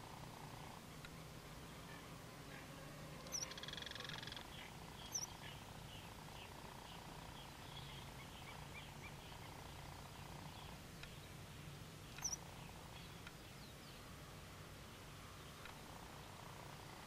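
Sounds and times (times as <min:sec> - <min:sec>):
bird calling high chirps: 0:03.2 - 0:05.6, 0:12.1 - 0:12.4.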